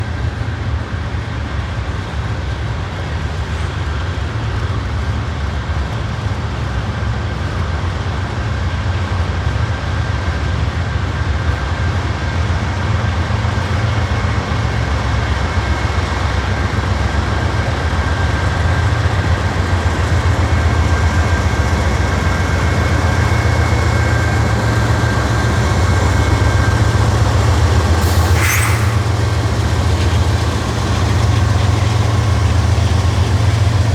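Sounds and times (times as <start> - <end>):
deep locomotive engine drone: 0.0 - 33.9
faint high whine: 22.6 - 32.4
short burst of noise: 28.0 - 30.1.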